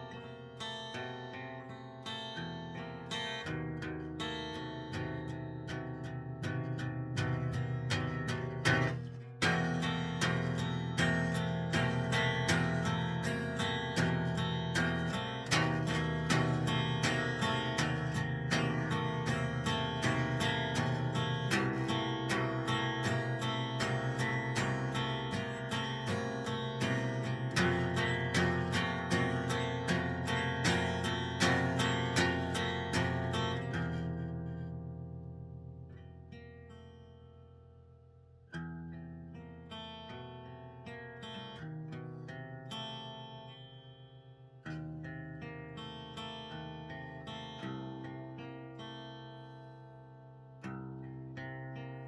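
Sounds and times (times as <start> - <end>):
plucked guitar-like notes: 2.4 - 36.7.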